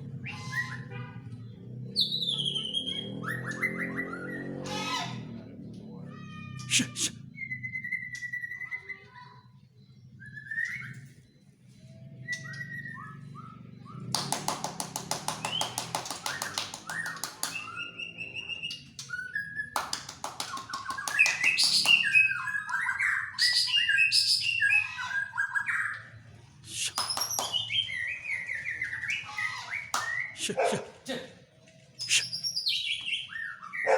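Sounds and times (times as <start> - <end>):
songbird singing whistles and trills: 2.0 - 4.6, 7.2 - 14.3, 15.3 - 30.4, 31.9 - 33.9.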